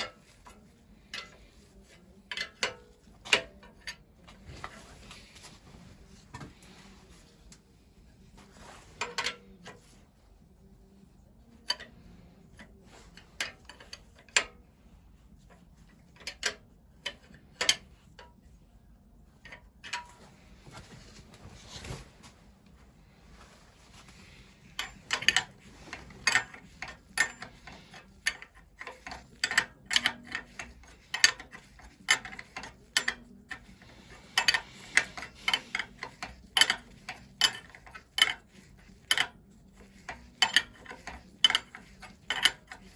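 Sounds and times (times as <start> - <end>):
metallic clicks of hand tools: 24.8 - 42.9.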